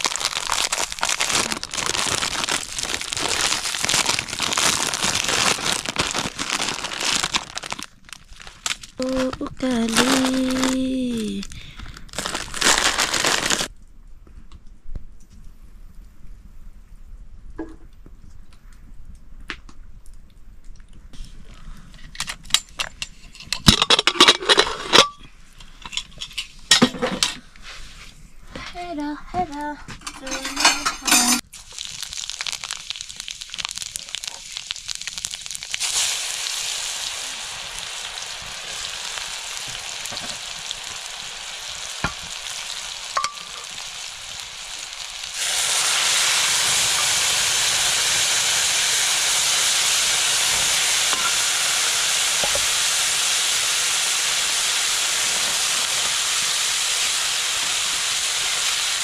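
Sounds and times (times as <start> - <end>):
food sizzling in hot oil: 0.0 - 11.5, 12.1 - 13.7, 30.1 - 59.0.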